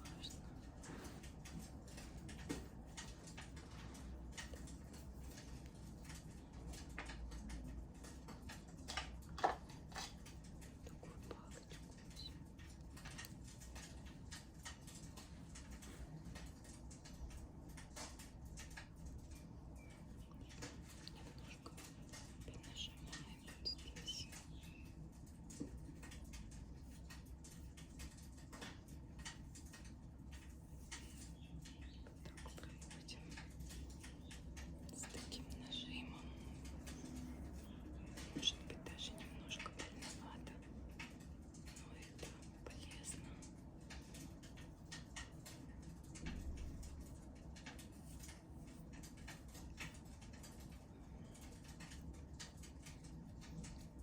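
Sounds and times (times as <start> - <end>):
wood fire crackling: 0.0 - 22.5, 23.1 - 54.0.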